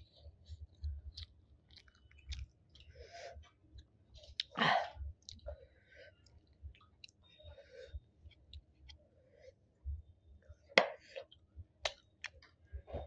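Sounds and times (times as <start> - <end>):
wet chewing and lip smacks: 0.5 - 4.6, 5.2 - 5.6, 6.2 - 7.4.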